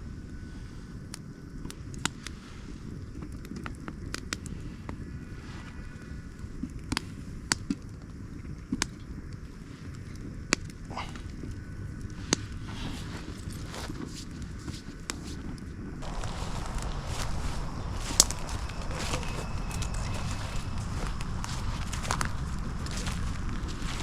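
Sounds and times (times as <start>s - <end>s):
campfire crackling: 0.3s - 24.0s
low steady rumble: 16.0s - 24.0s.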